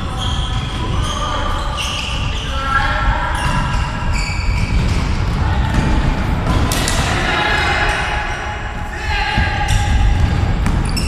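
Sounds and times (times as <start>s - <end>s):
players calling: 0.0s - 11.0s
football bouncing on hard court: 3.4s - 7.1s, 8.8s - 11.0s
sharp ball kick: 9.4s - 11.0s.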